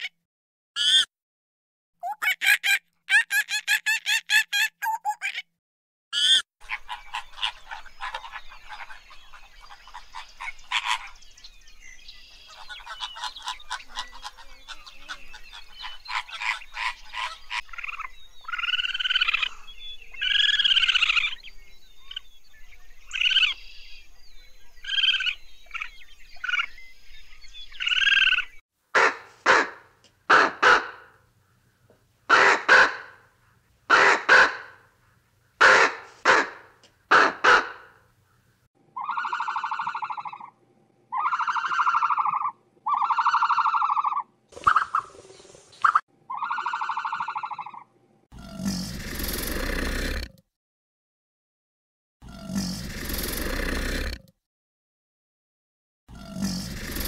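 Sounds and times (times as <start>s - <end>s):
rapid rattling animal calls: 6.2s - 11.2s, 12.5s - 19.5s, 39.0s - 47.8s, 48.6s - 50.3s, 52.5s - 54.2s, 56.2s - 57.0s
loud harsh animal call: 27.8s - 31.2s, 32.3s - 33.2s, 33.9s - 34.8s, 35.6s - 38.0s, 39.0s - 45.1s, 45.9s - 50.2s
animal calls rising and falling: 39.0s - 47.8s.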